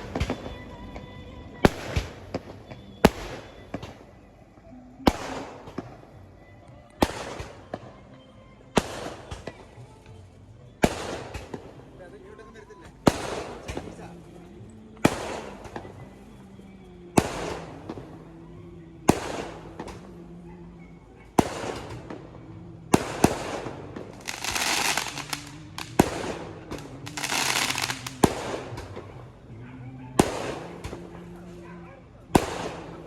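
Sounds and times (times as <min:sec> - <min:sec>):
firecracker bangs: 0:00.0 - 0:04.1, 0:05.1 - 0:06.0, 0:07.0 - 0:07.8, 0:10.8 - 0:11.9, 0:13.0 - 0:14.1, 0:15.0 - 0:16.0, 0:17.2 - 0:18.1, 0:19.1 - 0:20.0, 0:21.4 - 0:22.2, 0:22.9 - 0:29.1, 0:30.2 - 0:31.1, 0:32.3 - 0:33.0
hissing crackling firework burst: 0:23.0 - 0:28.8.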